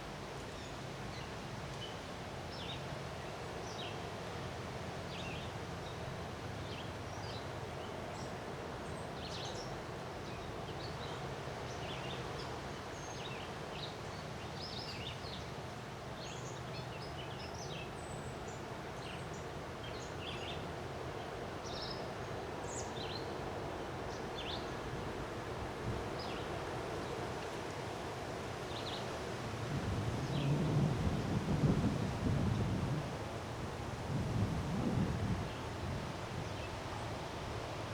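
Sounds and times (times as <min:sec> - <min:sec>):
wind with low rumble: 0:14.6 - 0:37.9.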